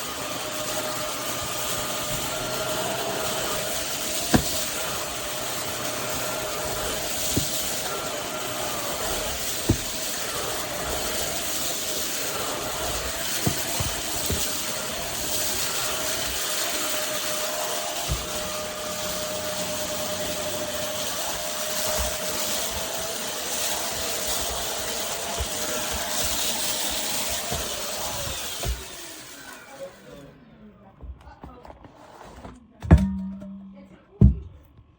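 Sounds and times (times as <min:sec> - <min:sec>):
stick vacuum cleaner whining: 0:00.0 - 0:30.6.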